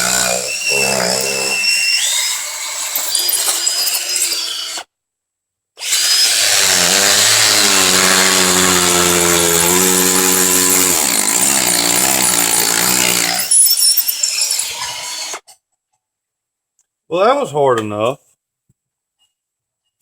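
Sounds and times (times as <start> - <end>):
hammer drill boring into concrete: 0.0 - 4.9, 5.8 - 15.4.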